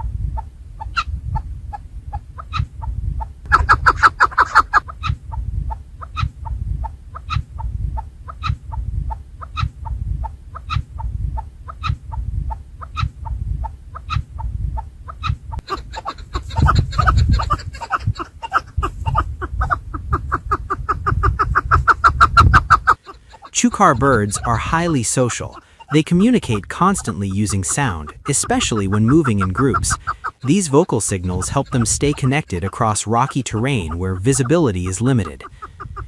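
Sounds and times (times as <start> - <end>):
partridge clucking calls: 0.0 - 36.0
low rumble: 5.2 - 14.8.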